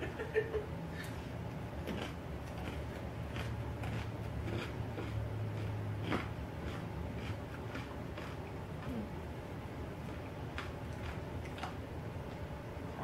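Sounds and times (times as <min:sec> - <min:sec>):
low steady hum: 0:00.0 - 0:13.0
crunchy chewing: 0:01.8 - 0:09.2, 0:09.9 - 0:12.5.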